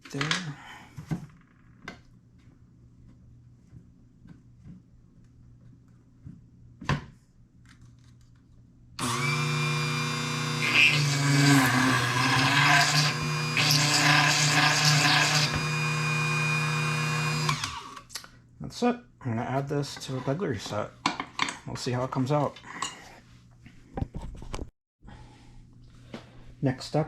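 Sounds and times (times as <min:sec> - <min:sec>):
small electric drill drilling: 0:09.0 - 0:18.1.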